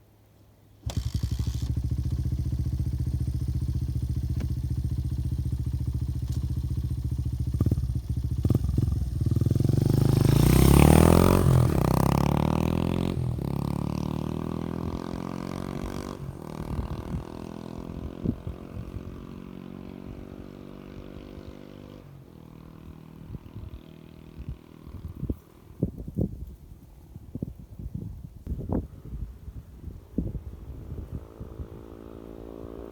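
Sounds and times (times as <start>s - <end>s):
motorcycle engine idling: 0.8s - 12.3s
motorcycle accelerating away: 0.8s - 26.0s, 30.3s - 32.9s.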